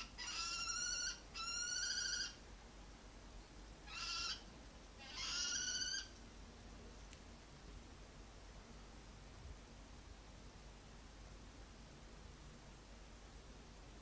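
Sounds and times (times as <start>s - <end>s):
kestrel alarm calls: 0.0s - 2.4s, 3.8s - 6.1s.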